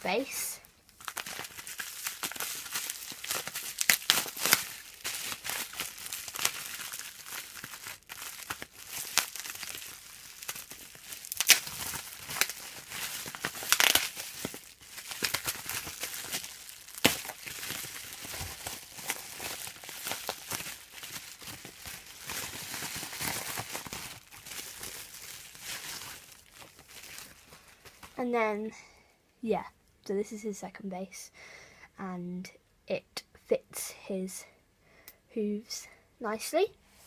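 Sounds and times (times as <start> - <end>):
packaging crinkling and tearing: 0.9 - 28.2.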